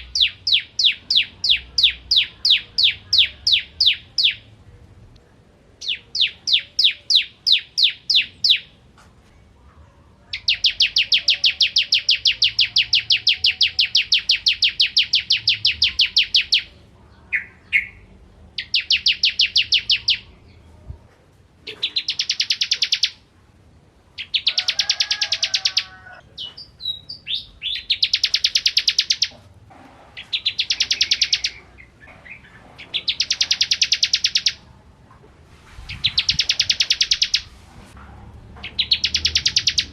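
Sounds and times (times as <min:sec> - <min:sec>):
bird singing rapid trills: 0:00.0 - 0:04.5, 0:05.8 - 0:08.7, 0:10.4 - 0:20.4, 0:21.9 - 0:23.2, 0:26.6 - 0:29.3, 0:30.2 - 0:34.6, 0:36.0 - 0:37.5, 0:38.6 - 0:39.9.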